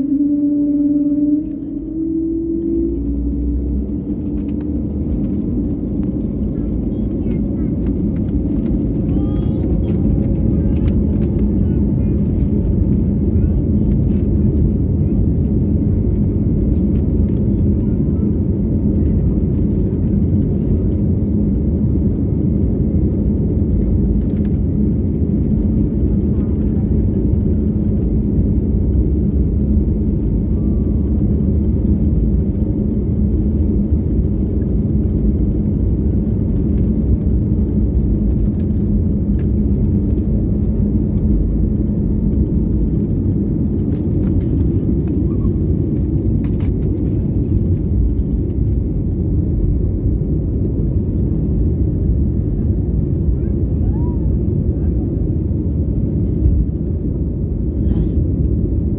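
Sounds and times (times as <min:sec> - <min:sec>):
steady hum: 0:00.0 - 0:14.7
airliner engines rumbling: 0:00.0 - 0:58.9.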